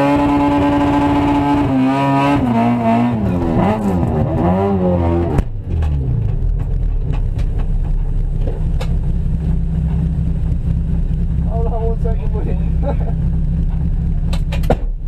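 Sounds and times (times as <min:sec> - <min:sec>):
car engine revving: 0:00.0 - 0:15.0
engine idling: 0:05.4 - 0:15.0.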